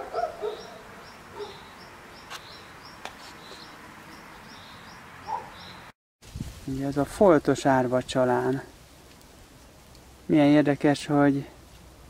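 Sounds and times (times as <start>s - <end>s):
bird chirping: 0.0s - 5.9s
faint outdoor hiss: 0.0s - 12.0s.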